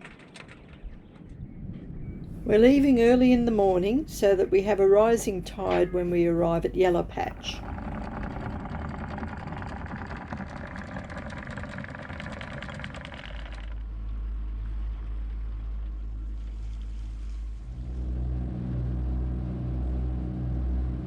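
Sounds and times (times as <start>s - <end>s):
boat motor running: 2.4s - 16.2s.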